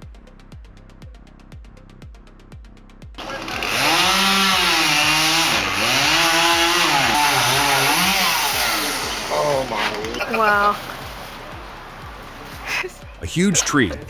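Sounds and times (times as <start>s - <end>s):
music with kick-drum beat: 0.0s - 3.7s, 6.5s - 14.0s
chainsaw revving: 3.2s - 12.8s.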